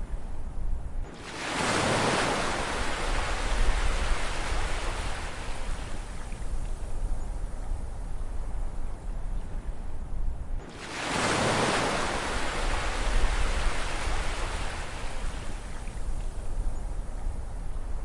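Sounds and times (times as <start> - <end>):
ocean wave breaking: 1.1 - 5.7, 10.7 - 15.6.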